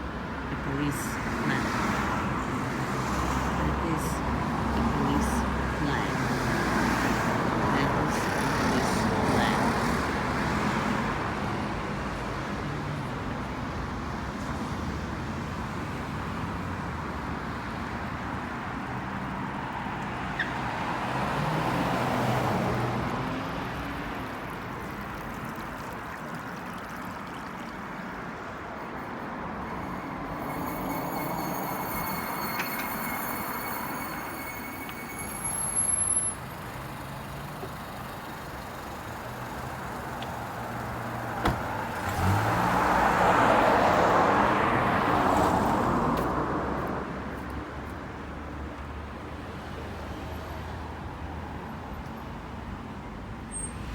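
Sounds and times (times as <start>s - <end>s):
vehicles passing: 0.0s - 53.9s
short high-pitched sound: 28.8s - 36.5s.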